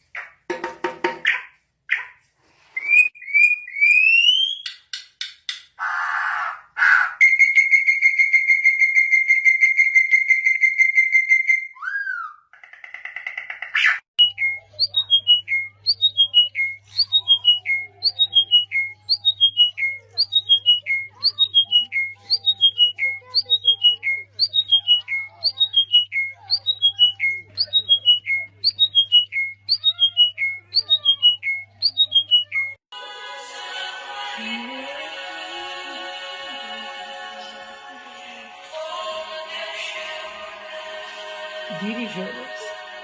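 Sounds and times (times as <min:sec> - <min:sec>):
birds whistling and calling: 0:05.8 - 0:12.4, 0:13.0 - 0:32.8.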